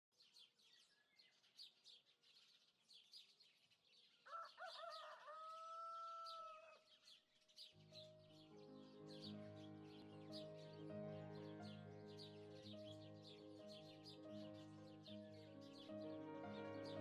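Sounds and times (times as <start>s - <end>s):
small birds chirping: 0.1s - 17.0s
rooster crowing: 4.3s - 6.8s
music: 7.8s - 17.0s.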